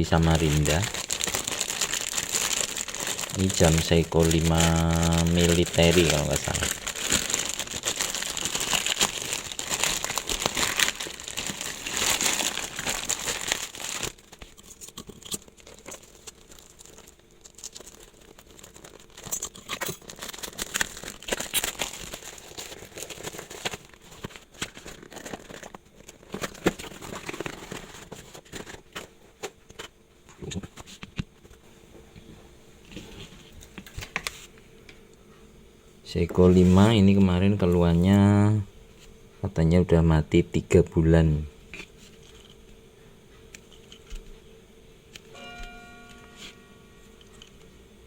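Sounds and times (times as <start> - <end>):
packaging crumpled by hand: 0.0 - 31.1.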